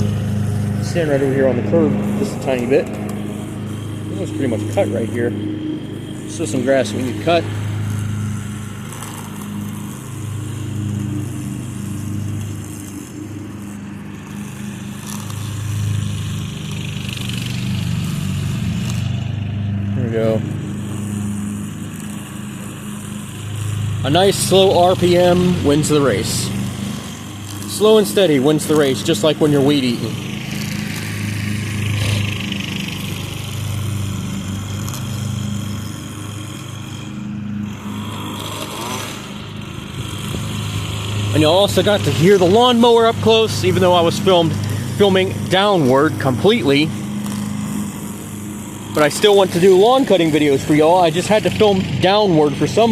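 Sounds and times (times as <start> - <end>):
riding lawn mower engine running: 0.0 - 52.9.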